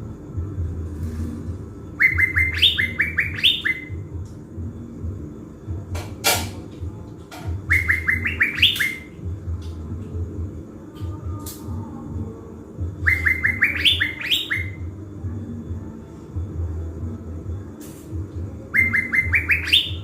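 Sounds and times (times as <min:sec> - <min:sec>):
songbird singing ringing notes: 0:01.9 - 0:04.2, 0:07.5 - 0:10.3, 0:12.8 - 0:15.8, 0:17.5 - 0:20.0.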